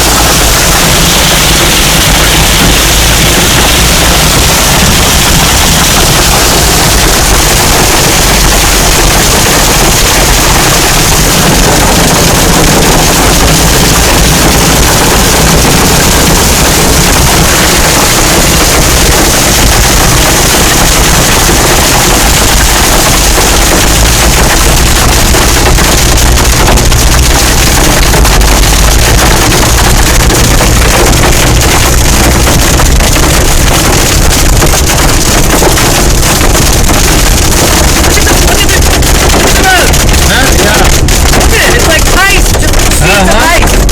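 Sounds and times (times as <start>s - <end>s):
hail pelting a car: 0.0s - 43.9s.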